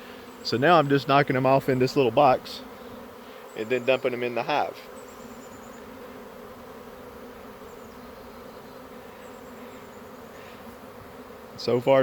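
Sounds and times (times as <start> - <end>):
bee swarm buzzing: 0.0 - 12.0.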